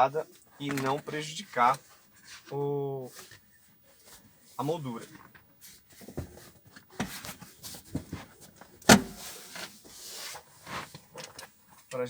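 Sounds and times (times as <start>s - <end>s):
knocks and clicks of plastic trim: 8.9s - 9.2s.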